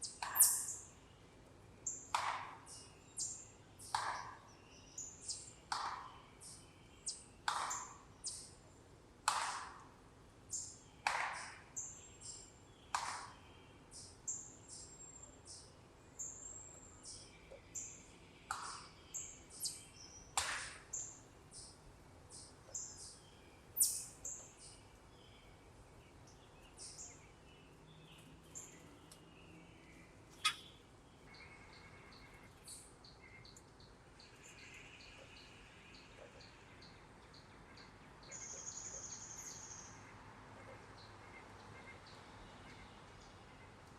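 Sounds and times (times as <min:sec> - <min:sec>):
sharp bird calls: 0:00.0 - 0:00.9, 0:23.8 - 0:24.8, 0:30.3 - 0:33.4
birds chirping: 0:00.0 - 0:08.6, 0:11.8 - 0:43.7.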